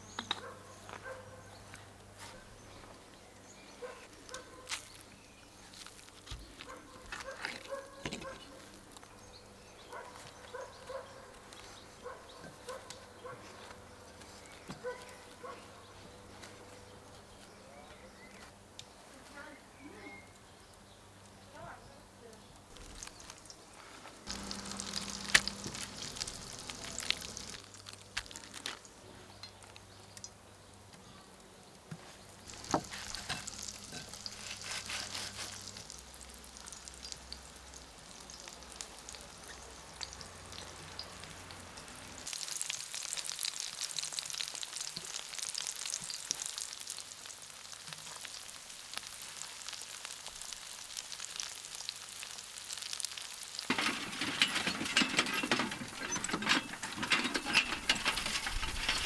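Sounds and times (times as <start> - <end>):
food sizzling in a frying pan: 24.3 - 28.0, 32.5 - 54.4.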